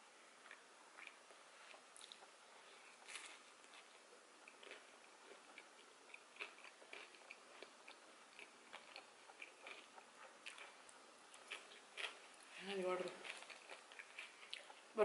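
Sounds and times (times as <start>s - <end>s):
faint wet chewing clicks: 13.1s - 14.9s.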